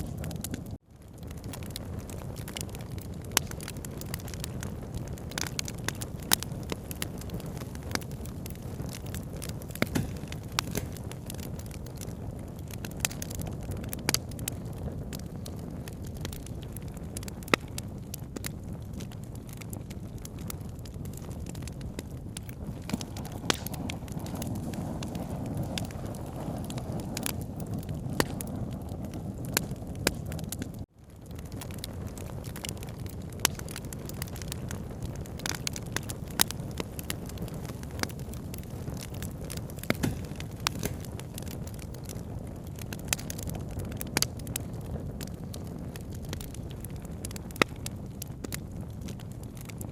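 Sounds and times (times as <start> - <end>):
campfire crackling: 0.0 - 49.9.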